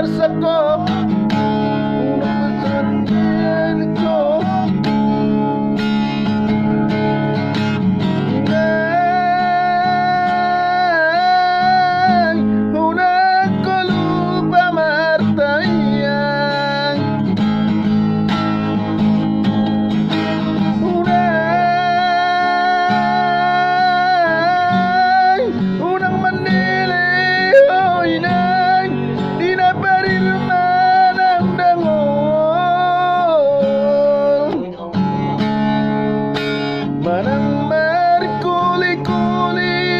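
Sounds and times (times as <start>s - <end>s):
guitar accompaniment: 0.0s - 39.9s
person singing slow melody: 20.8s - 35.1s.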